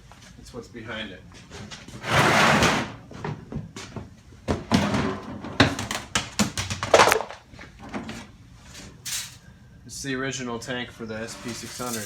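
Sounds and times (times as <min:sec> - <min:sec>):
objects knocking and clattering: 0:04.5 - 0:08.1.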